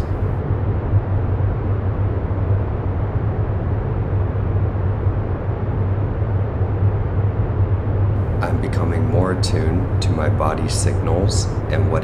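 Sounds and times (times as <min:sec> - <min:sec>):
low rumbling hum: 0:00.0 - 0:12.0.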